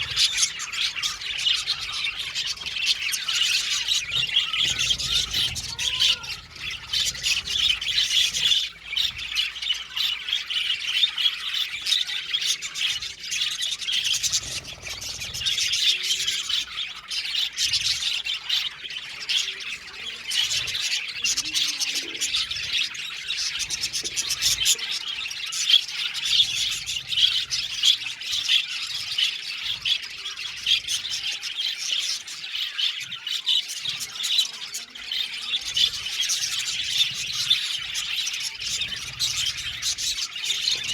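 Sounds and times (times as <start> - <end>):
budgerigars chattering and chirping: 0.0 - 40.9.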